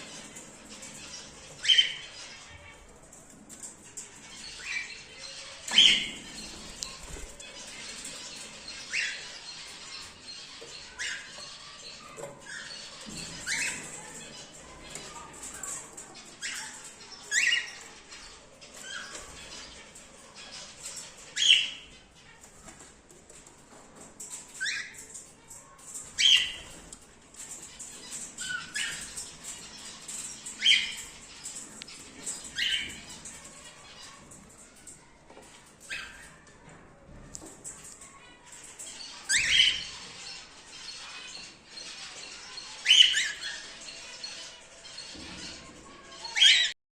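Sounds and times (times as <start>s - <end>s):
birds chirping: 0.0s - 46.8s.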